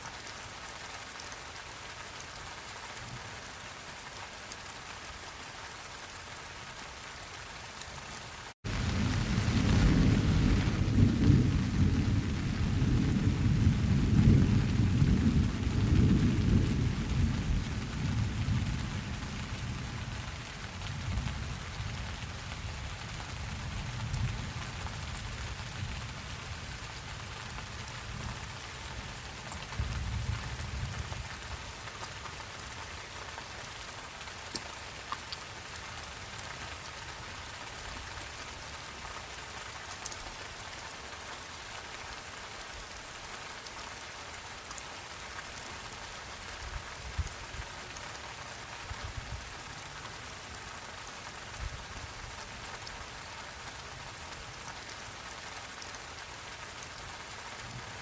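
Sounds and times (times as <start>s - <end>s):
steady rain: 0.0s - 58.0s
thunder rumbling: 8.7s - 21.6s.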